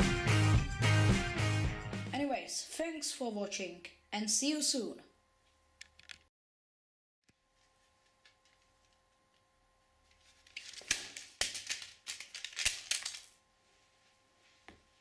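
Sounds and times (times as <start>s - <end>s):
faint steady hum: 2.2s - 6.2s, 7.3s - 15.0s.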